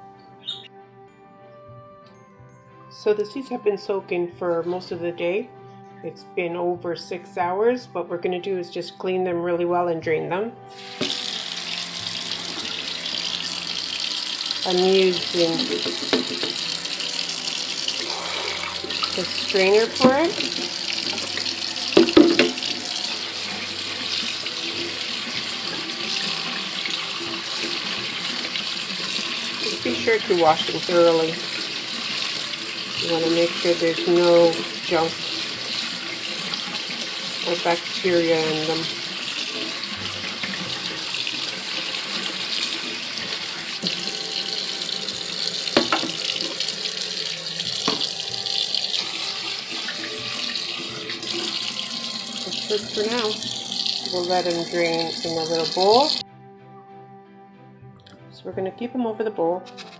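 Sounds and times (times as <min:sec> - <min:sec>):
tap water running into strainer: 0:10.7 - 0:56.2.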